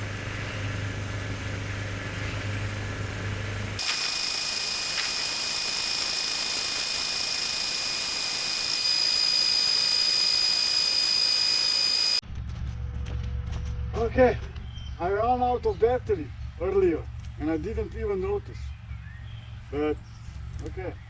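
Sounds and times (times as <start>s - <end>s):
low motor hum: 3.8s - 12.2s
machine whirr with high whine: 3.8s - 12.2s.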